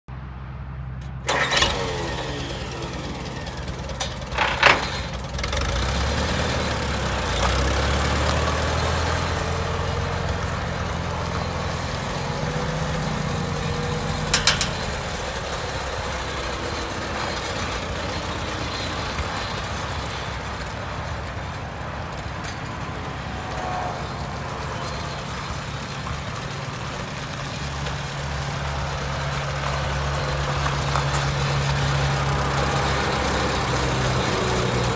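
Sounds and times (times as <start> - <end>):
tractor engine running: 0.2 - 34.9
engine bangs: 0.5 - 34.9.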